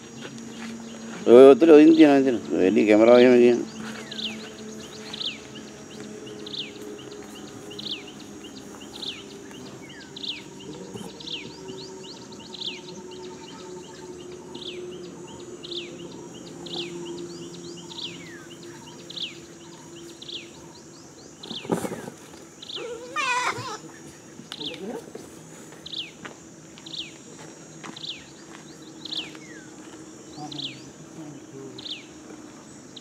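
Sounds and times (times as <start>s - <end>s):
bird chirping: 0.0s - 33.0s
high insect drone: 0.0s - 33.0s.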